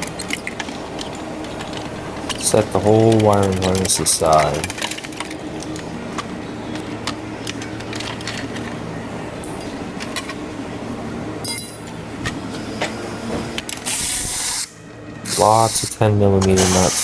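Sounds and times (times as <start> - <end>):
tools clinking and tapping: 0.0 - 8.8, 11.4 - 12.0
steady low hum: 0.0 - 17.0.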